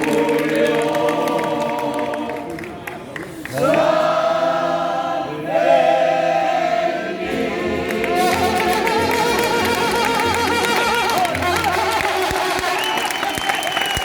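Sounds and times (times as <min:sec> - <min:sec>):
mariachi band playing: 0:07.2 - 0:13.4.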